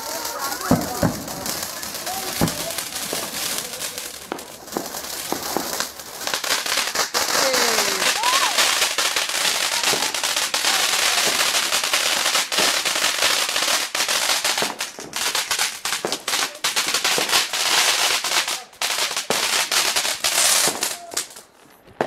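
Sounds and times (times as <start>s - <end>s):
fireworks crackling and banging: 0.0s - 22.0s.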